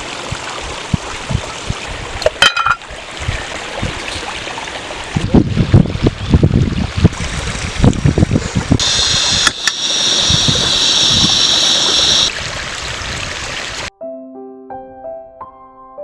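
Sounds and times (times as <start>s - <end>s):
loud high hiss: 8.8s - 12.3s.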